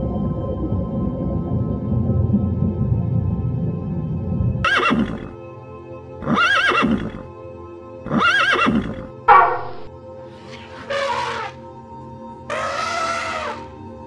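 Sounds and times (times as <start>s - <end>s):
background music: 0.0s - 14.0s
horse neighing: 4.6s - 5.4s, 6.2s - 7.3s, 8.1s - 9.9s, 10.5s - 11.6s, 12.5s - 13.7s.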